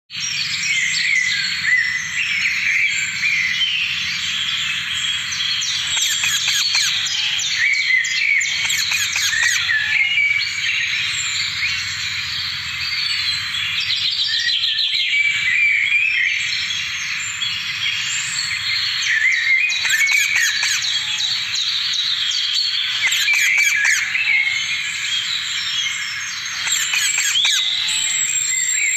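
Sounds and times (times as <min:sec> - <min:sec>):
parrots chirping and chattering: 0:05.2 - 0:13.7, 0:17.9 - 0:28.9.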